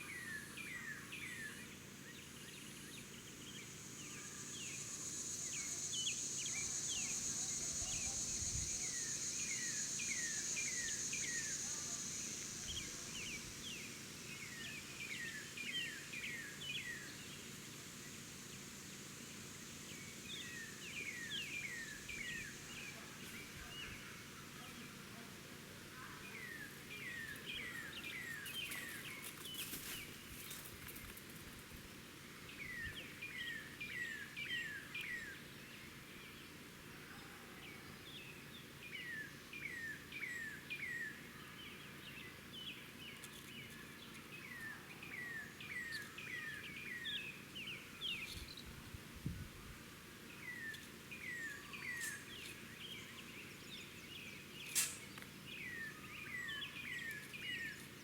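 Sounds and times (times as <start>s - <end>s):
small birds chirping: 37.8s - 48.8s, 50.3s - 58.0s.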